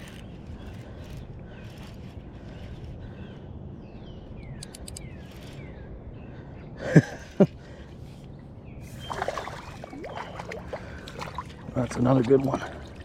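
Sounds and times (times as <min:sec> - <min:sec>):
birds chirping: 0:00.0 - 0:13.0
water and movement: 0:08.8 - 0:13.0.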